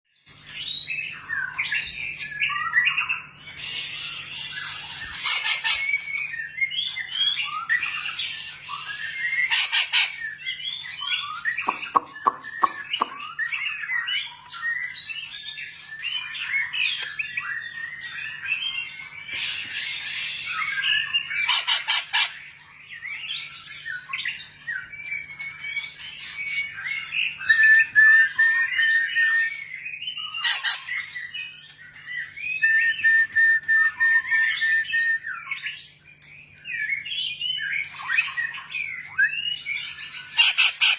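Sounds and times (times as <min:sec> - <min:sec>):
bird singing whistled phrases: 0:00.5 - 0:22.4, 0:23.0 - 0:40.9
harsh rasping bird squawks: 0:03.6 - 0:05.9, 0:09.4 - 0:10.2, 0:21.4 - 0:22.4, 0:30.4 - 0:30.9, 0:40.4 - 0:40.9.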